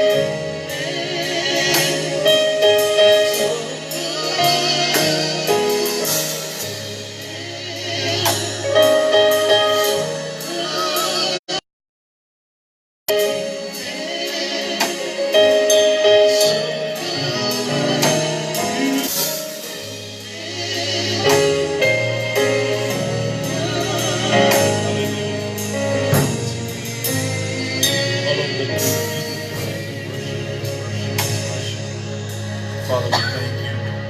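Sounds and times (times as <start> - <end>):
drums: 0.0 - 11.6, 13.1 - 34.0
people singing gospel: 0.0 - 11.6, 13.1 - 34.0
bass line: 19.8 - 34.0.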